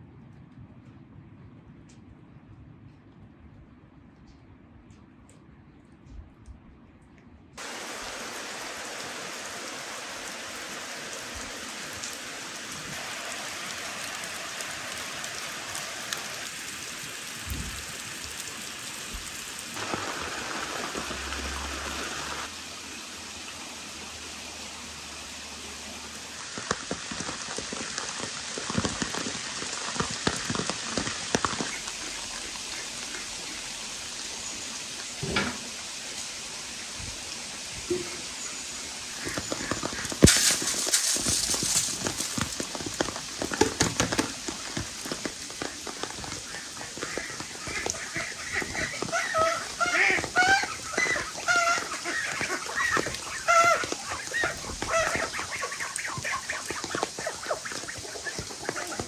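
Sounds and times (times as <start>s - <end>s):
steady rain falling: 0.0s - 59.0s
heavy drops tapping leaves: 7.6s - 22.5s, 39.1s - 59.0s.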